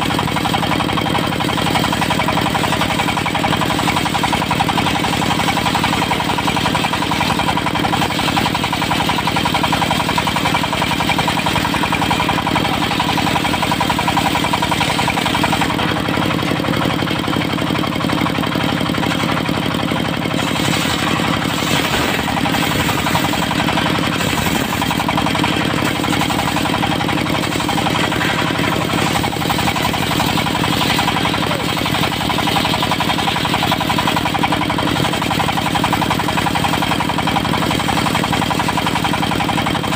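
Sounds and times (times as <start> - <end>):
diesel engine running: 0.0 - 39.9
saw blade humming: 2.4 - 34.1.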